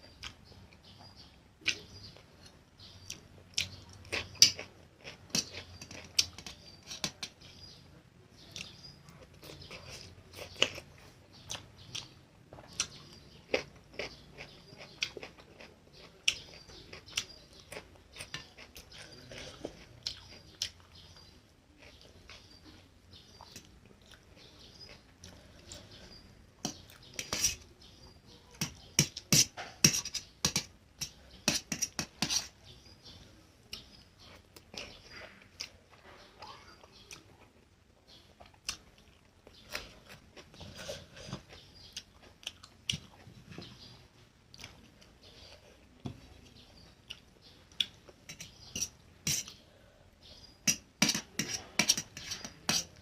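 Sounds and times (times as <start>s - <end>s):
wet chewing: 38.4s - 43.8s.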